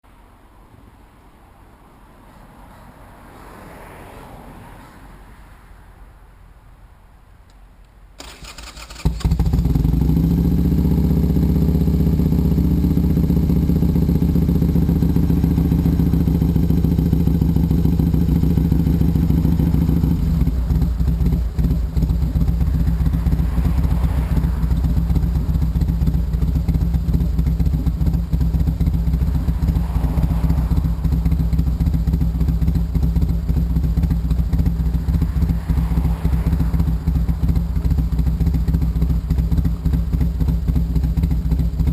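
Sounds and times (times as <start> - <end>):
motorcycle starter cranking: 8.2 - 9.8
motorcycle engine idling: 8.2 - 41.9.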